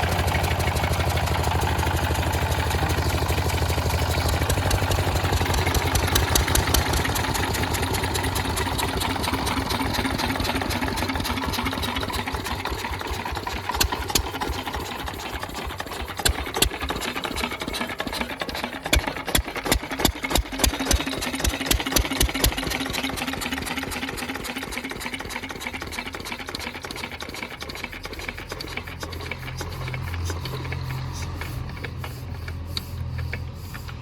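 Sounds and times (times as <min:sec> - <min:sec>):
stationary engines clattering: 0:00.0 - 0:34.0
sharp mechanical knocks: 0:18.8 - 0:23.0.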